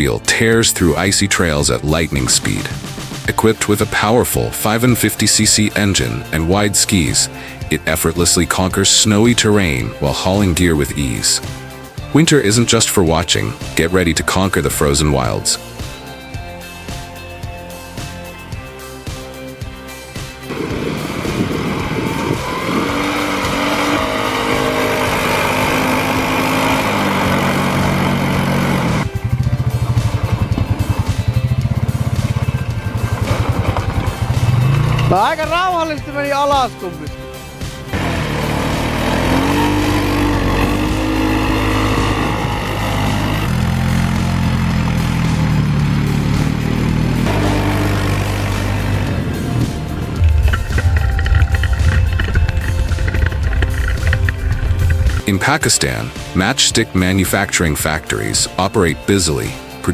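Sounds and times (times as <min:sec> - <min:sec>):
snowmobile engine under load: 0:20.4 - 0:59.3.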